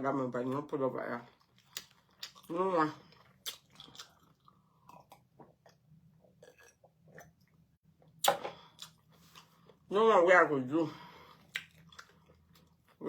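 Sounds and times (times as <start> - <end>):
person chewing food: 1.3 - 9.8, 11.3 - 13.0
wet mouth clicks and smacks: 3.4 - 4.2, 11.5 - 12.2.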